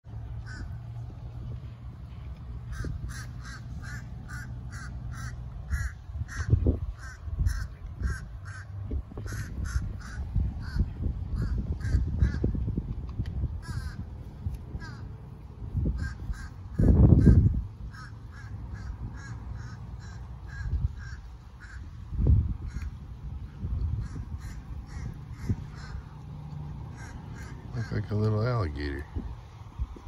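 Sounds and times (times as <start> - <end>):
steady low rumble: 0.1 - 30.0
bird harsh calls: 0.4 - 0.9, 2.6 - 12.6, 13.6 - 14.1, 14.7 - 15.1, 15.8 - 22.0, 23.9 - 26.2, 26.8 - 28.1.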